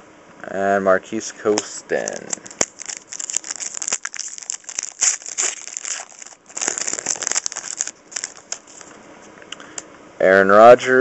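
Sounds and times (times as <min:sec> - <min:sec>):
card pack wrapper crinkling: 0:01.5 - 0:09.0.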